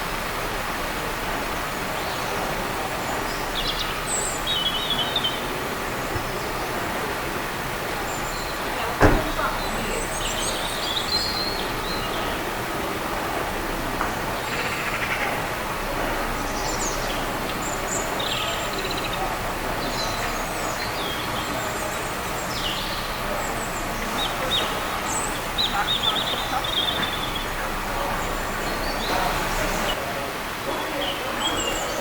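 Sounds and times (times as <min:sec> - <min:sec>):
steady background noise: 0:00.0 - 0:32.0
small birds chirping: 0:01.8 - 0:07.2, 0:07.9 - 0:12.6, 0:16.4 - 0:30.0.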